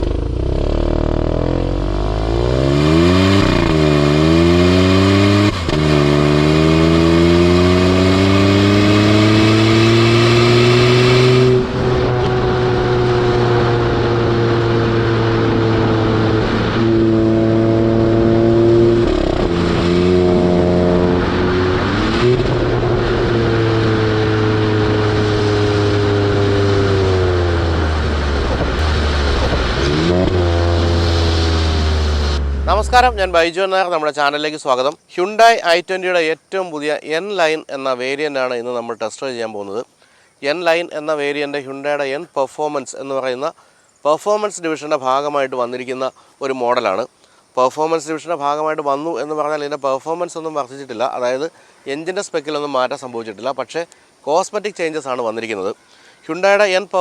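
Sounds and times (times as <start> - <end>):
car engine accelerating: 0.0 - 33.6.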